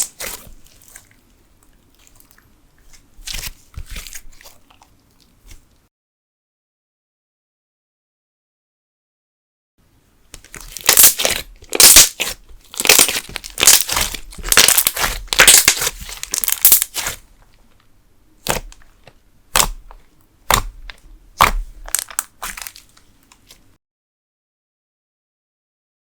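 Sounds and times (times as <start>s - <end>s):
slime crackling and popping: 0.0s - 1.0s, 10.4s - 17.5s, 18.4s - 23.6s.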